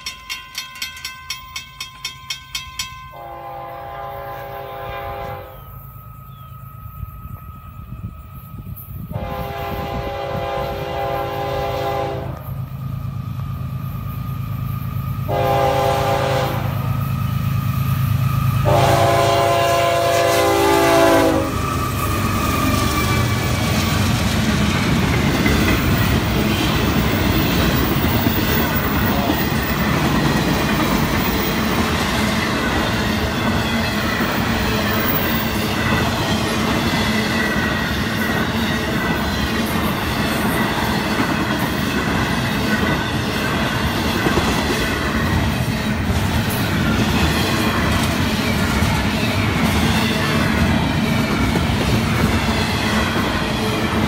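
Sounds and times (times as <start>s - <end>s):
train wheels rumbling on rail: 0.0s - 54.0s
locomotive air horn blasts: 3.1s - 5.8s, 9.1s - 12.5s, 15.3s - 16.9s, 18.6s - 21.7s.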